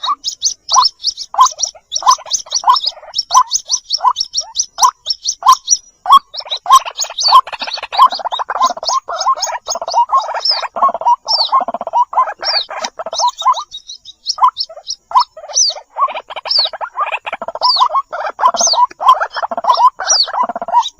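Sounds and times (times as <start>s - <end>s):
lower chattering bird calls: 0.0s - 20.9s
rapid high bird peeps: 0.0s - 20.9s.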